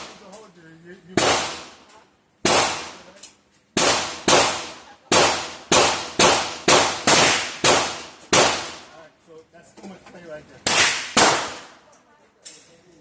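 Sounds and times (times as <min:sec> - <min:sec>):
handgun shots with ringing echo: 0:01.2 - 0:01.7, 0:02.4 - 0:03.1, 0:10.7 - 0:11.7.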